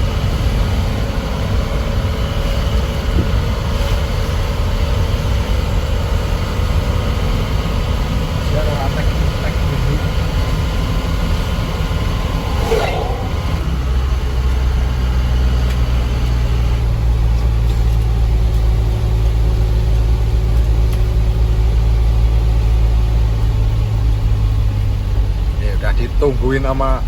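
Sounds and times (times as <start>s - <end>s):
truck diesel engine humming: 0.0s - 27.0s
brief higher sound: 12.0s - 14.0s.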